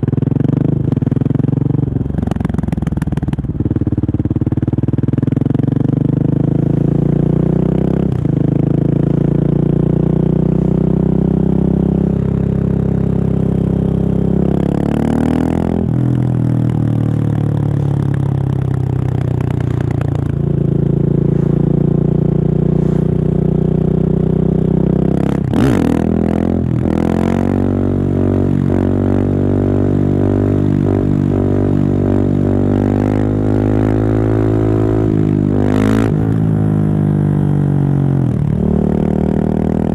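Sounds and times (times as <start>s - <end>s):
motorcycle engine revving: 0.0s - 39.9s
exhaust cracks: 15.8s - 24.0s.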